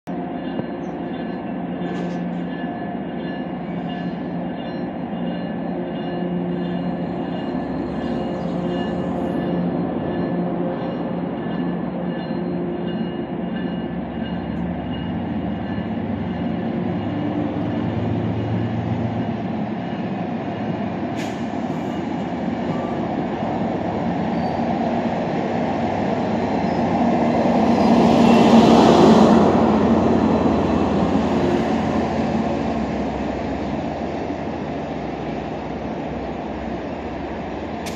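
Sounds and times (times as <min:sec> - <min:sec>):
diesel locomotive drone: 0:00.1 - 0:37.9
train coaches rolling past: 0:00.1 - 0:37.9.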